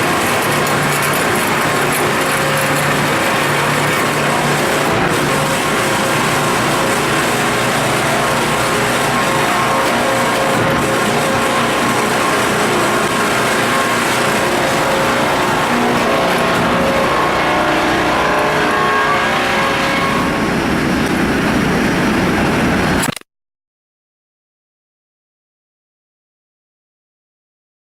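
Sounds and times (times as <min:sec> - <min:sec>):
log edger saw running: 0:00.0 - 0:19.8.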